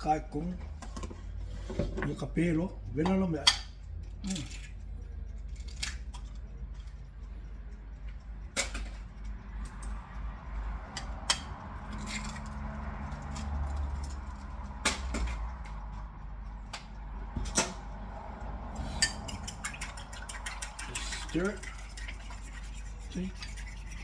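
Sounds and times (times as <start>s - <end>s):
steady low hum: 0.0s - 24.0s
utensils and cookware clinking: 0.6s - 4.8s, 11.0s - 15.8s, 18.8s - 24.0s.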